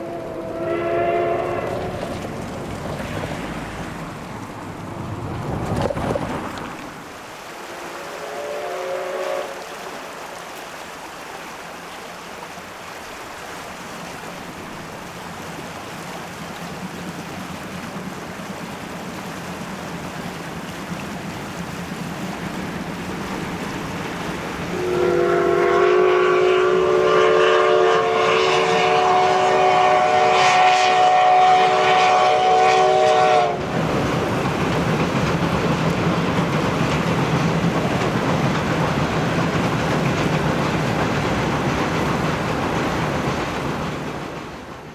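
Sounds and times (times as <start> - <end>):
train whistle: 0.0 - 2.2, 7.6 - 9.9, 24.7 - 33.7
locomotive running: 0.0 - 7.8, 13.0 - 44.9.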